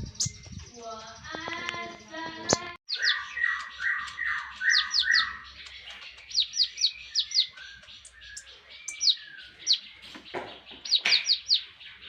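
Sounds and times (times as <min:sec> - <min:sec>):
sunbird singing: 0:00.0 - 0:12.0.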